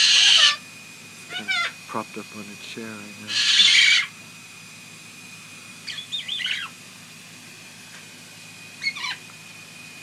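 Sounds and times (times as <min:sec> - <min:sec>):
parrot chirping: 0:00.0 - 0:00.6, 0:03.3 - 0:04.1, 0:05.8 - 0:06.7, 0:08.8 - 0:09.2.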